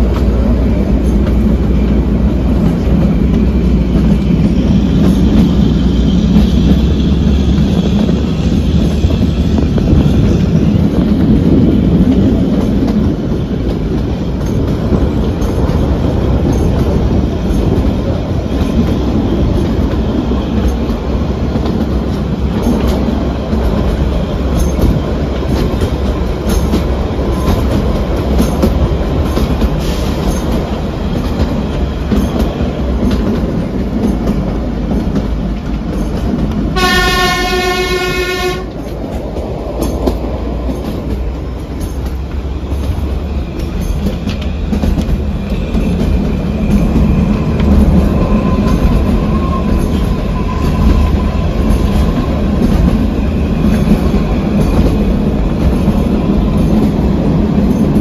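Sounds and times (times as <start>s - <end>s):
train wheels rumbling and clattering: 0.0s - 58.0s
train horn blast: 36.7s - 38.8s.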